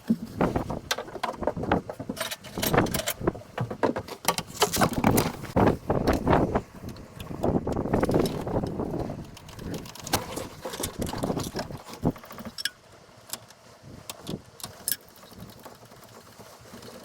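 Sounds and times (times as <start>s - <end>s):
tools clicking and knocking: 0.9s - 5.5s.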